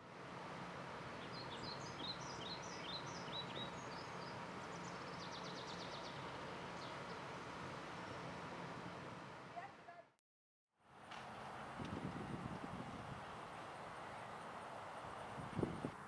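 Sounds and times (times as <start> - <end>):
outdoor background hiss: 0.0 - 10.2, 10.8 - 16.0
small birds chirping: 1.2 - 7.4.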